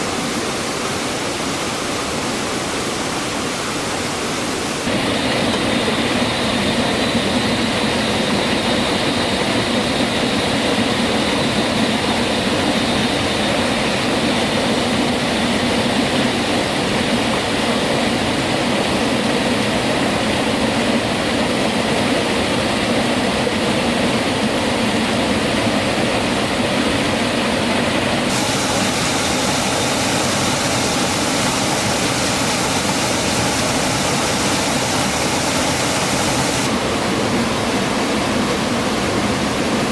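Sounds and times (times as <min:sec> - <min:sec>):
rushing stream or waterfall: 0:00.0 - 0:06.0, 0:13.4 - 0:39.9.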